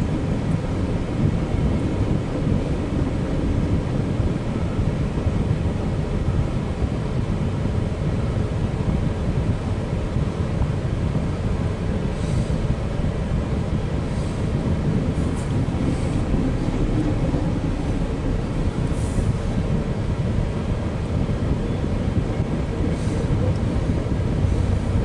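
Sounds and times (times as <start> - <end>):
train cars rolling past: 14.0 - 25.0.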